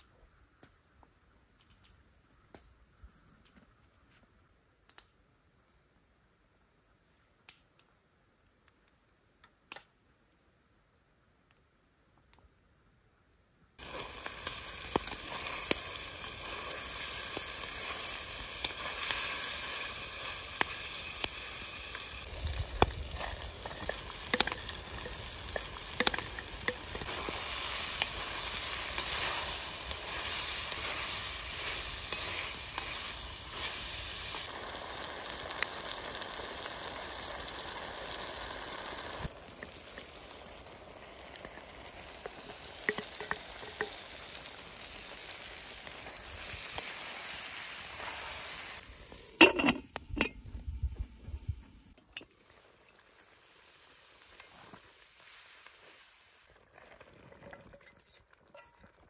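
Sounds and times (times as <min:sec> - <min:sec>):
meat sizzling: 0:13.8 - 0:56.7.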